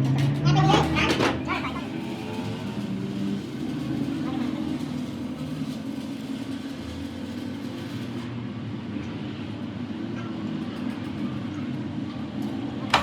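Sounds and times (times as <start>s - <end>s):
machinery rumbling: 0.0s - 13.0s.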